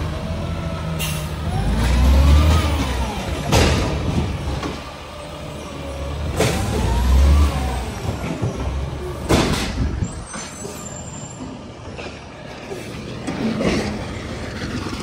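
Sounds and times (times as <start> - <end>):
diesel truck engine revving: 0.0 - 10.1.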